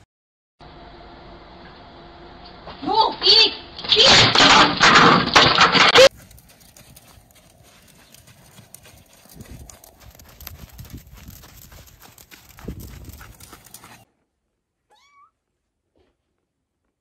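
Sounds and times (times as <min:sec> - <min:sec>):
pony hooves on sand: 0:06.1 - 0:14.1
kitten meowing: 0:14.9 - 0:15.4.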